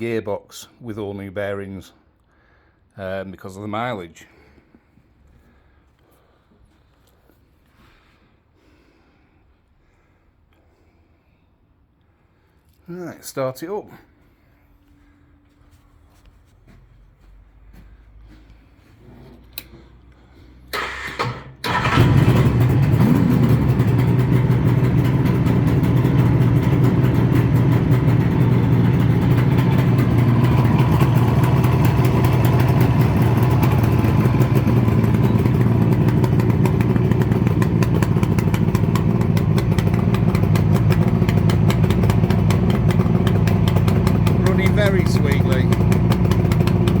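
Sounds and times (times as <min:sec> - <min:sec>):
motorcycle engine cranking: 0:20.6 - 0:47.0
motorcycle engine idling: 0:21.7 - 0:47.0.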